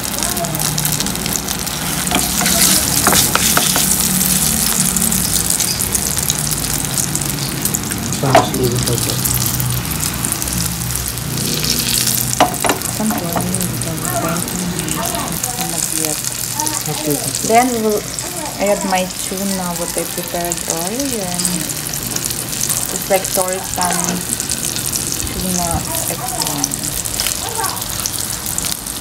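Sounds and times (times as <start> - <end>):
omelette sizzling in oil: 0.0 - 29.0
spatula scraping pan: 1.7 - 4.5.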